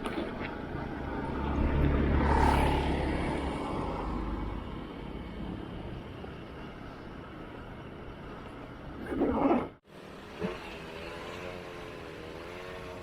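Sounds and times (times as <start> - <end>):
vehicle passing by: 0.7 - 6.0.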